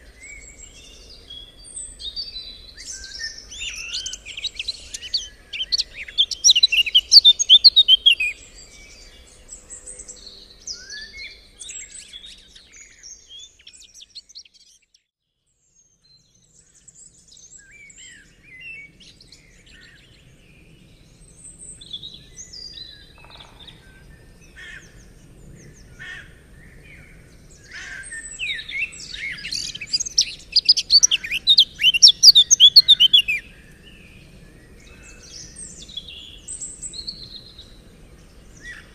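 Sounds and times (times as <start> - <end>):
bird chirps: 0.0 - 15.1, 21.6 - 24.1, 27.4 - 38.9
bird twittering song: 0.0 - 38.9.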